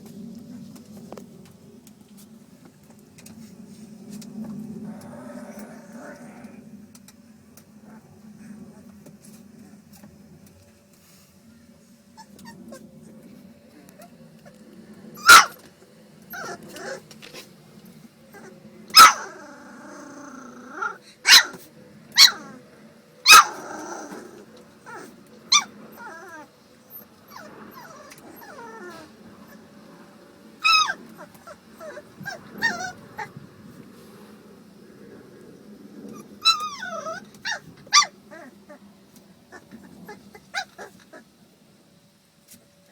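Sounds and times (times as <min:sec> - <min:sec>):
puppies growling: 0:04.0 - 0:10.0, 0:12.2 - 0:41.3
puppy whimpering: 0:15.2 - 0:15.6, 0:16.3 - 0:17.1, 0:18.3 - 0:21.6, 0:22.2 - 0:22.6, 0:23.3 - 0:29.6, 0:30.6 - 0:33.4, 0:36.1 - 0:38.8
puppies yipping and barking: 0:15.2 - 0:17.1, 0:18.3 - 0:19.4, 0:22.2 - 0:22.5, 0:23.3 - 0:24.2, 0:24.8 - 0:29.7, 0:30.6 - 0:33.3, 0:36.1 - 0:38.5, 0:39.5 - 0:41.3.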